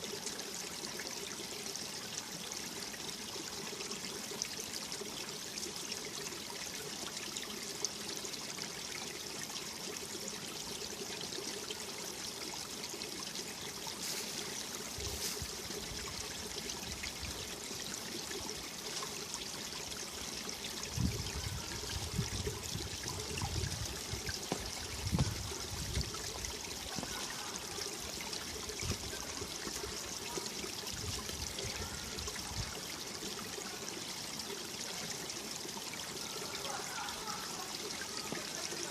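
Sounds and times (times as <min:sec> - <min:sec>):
stream rushing over rocks: 0:00.0 - 0:38.9
wind gusts on microphone: 0:20.9 - 0:26.2.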